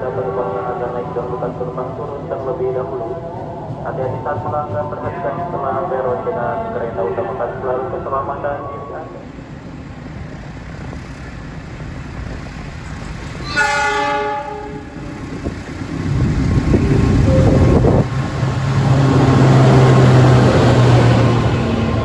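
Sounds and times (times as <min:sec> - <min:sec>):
train rumbling past: 0:00.0 - 0:22.0
train horn blast: 0:13.4 - 0:15.0.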